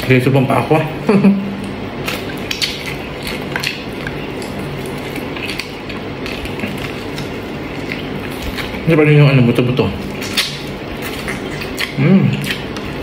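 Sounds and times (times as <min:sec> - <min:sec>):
steady background noise: 0:00.0 - 0:13.0
person chewing food: 0:01.5 - 0:09.0, 0:10.0 - 0:13.0
mouth clicks and smacks: 0:01.6 - 0:08.8, 0:10.0 - 0:13.0.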